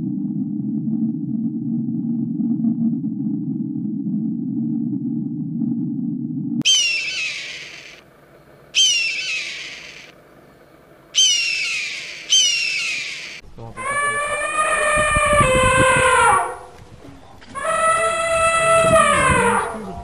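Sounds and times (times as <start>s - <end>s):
eagle screaming calls: 6.6s - 8.0s, 8.8s - 10.1s, 11.2s - 16.6s, 17.6s - 19.9s
elephant trumpeting: 6.6s - 8.0s, 8.8s - 10.1s, 11.2s - 16.6s.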